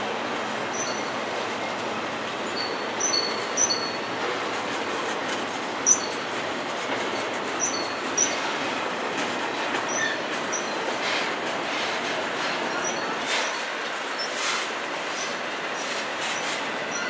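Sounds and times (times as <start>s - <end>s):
steel wheels rolling on rail: 0.0s - 17.0s
high-pitched wheel squeals: 0.7s - 1.1s.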